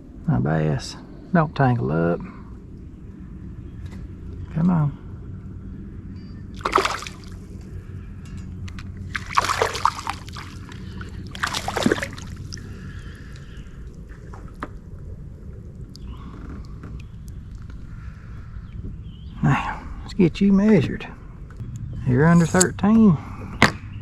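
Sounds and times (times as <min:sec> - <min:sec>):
fish splashing in water: 0:06.5 - 0:07.6, 0:09.1 - 0:16.3.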